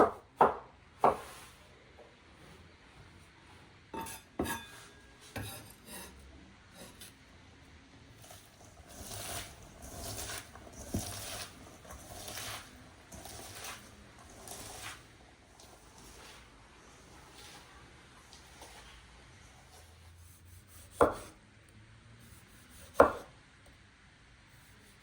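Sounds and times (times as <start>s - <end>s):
rubbing or scraping strokes: 8.2s - 21.1s.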